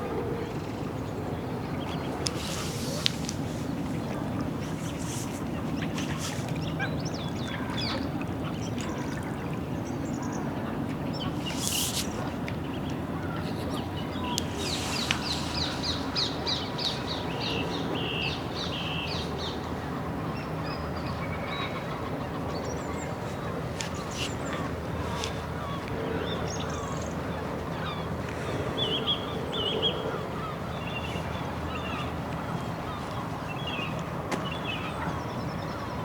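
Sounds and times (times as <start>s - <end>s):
birds calling: 1.3s - 9.3s, 11.1s - 19.6s, 21.6s - 36.0s
rapid high repeated bird calls: 13.4s - 19.2s.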